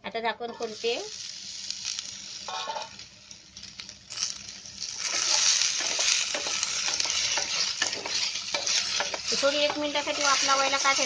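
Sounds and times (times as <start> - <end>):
potato strips sizzling: 0.5 - 11.0
spatula scraping a pan: 2.5 - 2.9, 4.1 - 11.0.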